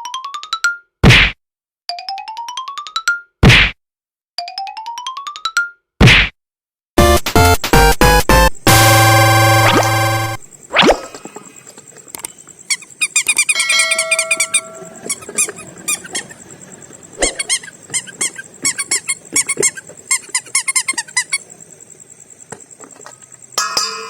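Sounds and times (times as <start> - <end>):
plastic bags squeaking: 12.6 - 21.5.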